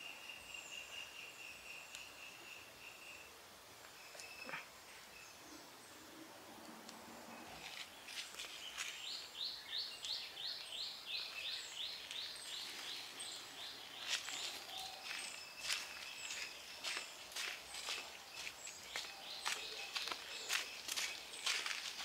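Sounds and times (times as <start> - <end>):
footsteps on gravel: 7.5 - 9.1, 13.9 - 22.0.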